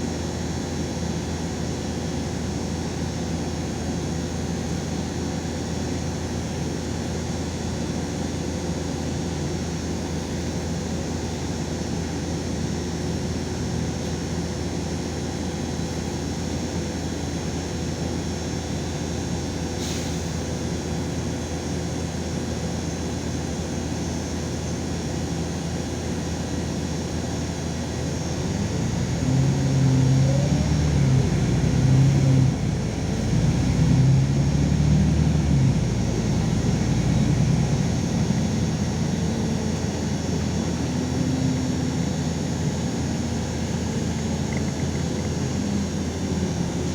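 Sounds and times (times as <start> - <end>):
bus engine and road drone: 0.0 - 46.9.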